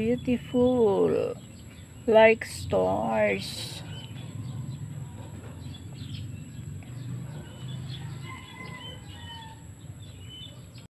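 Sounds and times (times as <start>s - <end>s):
steady low rumble: 0.0s - 8.2s
small birds chirping: 0.0s - 10.9s.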